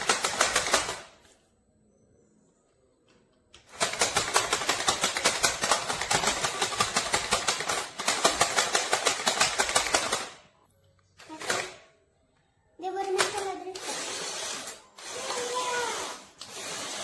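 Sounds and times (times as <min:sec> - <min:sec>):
toy electric motor clicking: 0:03.6 - 0:10.4, 0:13.0 - 0:17.0.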